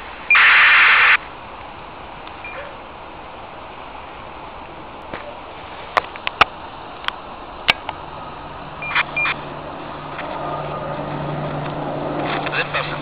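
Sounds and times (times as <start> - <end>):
background noise around aircraft: 0.0 - 13.0
short high beeps: 0.3 - 1.2, 2.4 - 2.7, 8.8 - 9.4.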